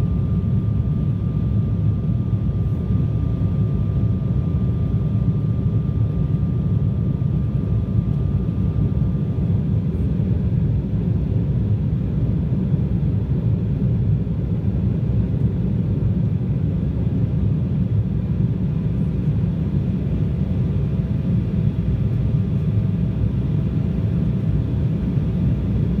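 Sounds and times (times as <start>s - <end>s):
faint steady whine: 16.9s - 26.0s
jet engines rumbling: 17.1s - 26.0s.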